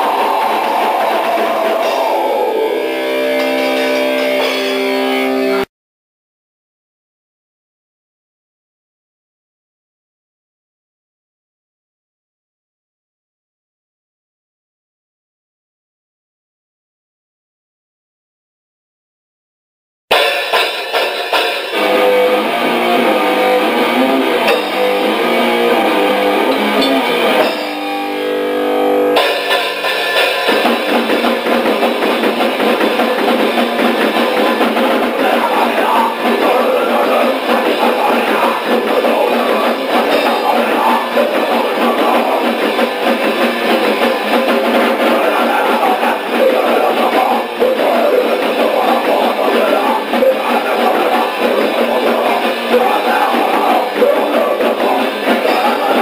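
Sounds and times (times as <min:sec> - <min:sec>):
drum kit: 0:00.0 - 0:05.7, 0:20.1 - 0:56.0
electric guitar: 0:00.0 - 0:05.7, 0:20.1 - 0:56.0.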